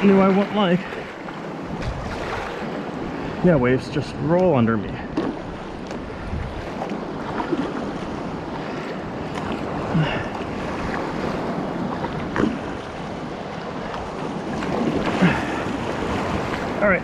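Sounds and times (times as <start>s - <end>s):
short splashes: 0.0s - 3.5s, 13.8s - 16.8s
water washing around kayak: 0.0s - 17.0s
wind buffeting microphone: 0.0s - 17.0s.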